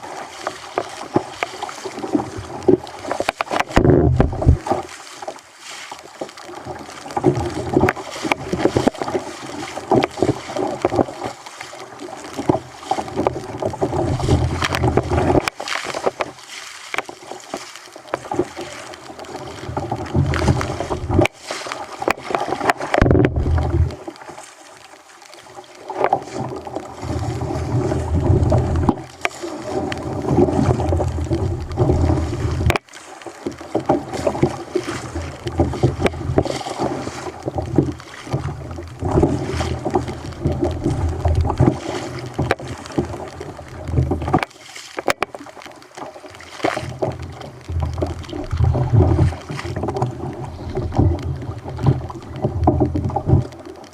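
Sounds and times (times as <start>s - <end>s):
water slapping against kayak hull: 0.0s - 53.9s
wind buffeting microphone: 3.7s - 4.6s.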